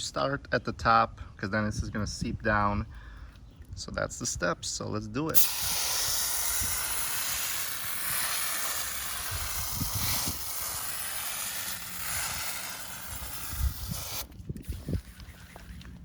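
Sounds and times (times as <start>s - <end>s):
aerosol can spraying: 5.3s - 15.2s.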